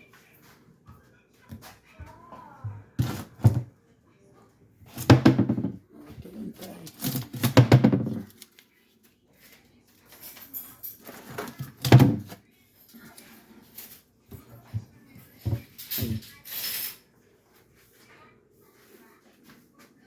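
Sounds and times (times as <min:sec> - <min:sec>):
indistinct voices: 0:05.6 - 0:08.2.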